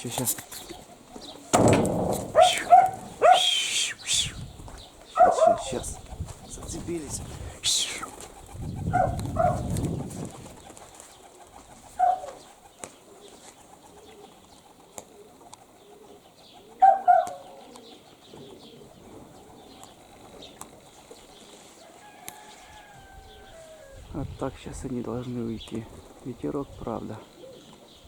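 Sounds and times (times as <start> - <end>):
short bird calls: 0.5 - 6.1, 7.6 - 8.2
wind rumbling on microphone: 1.6 - 10.9, 22.8 - 27.0.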